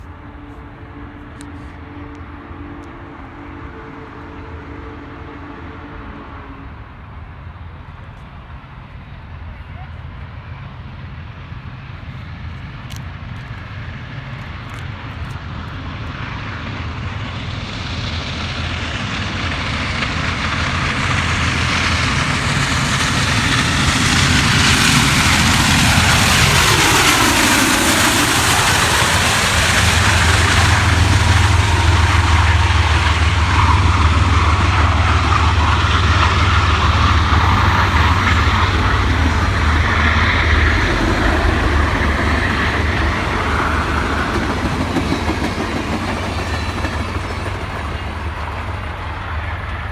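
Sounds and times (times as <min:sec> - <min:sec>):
steam train passing: 0:00.0 - 0:49.9.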